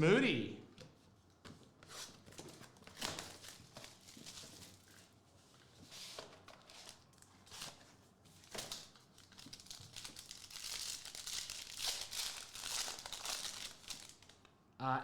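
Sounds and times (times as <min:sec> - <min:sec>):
plastic wrapping crinkling: 0:02.7 - 0:05.2, 0:08.4 - 0:14.5.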